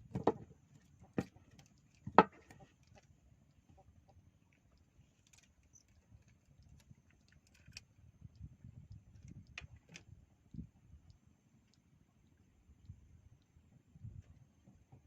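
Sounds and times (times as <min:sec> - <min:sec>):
faint low rumble: 0:00.0 - 0:15.0
small clicks and ticks: 0:00.7 - 0:13.6.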